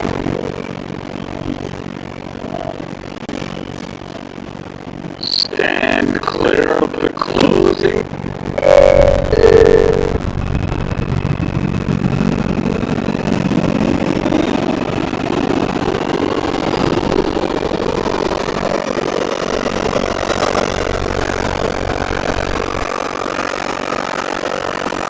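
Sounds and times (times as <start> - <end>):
thin high whine: 5.2 - 10.4.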